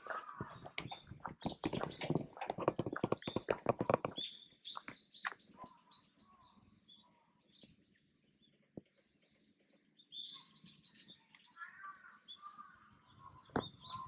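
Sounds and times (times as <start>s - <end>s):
birds calling sharply: 0.0s - 6.6s.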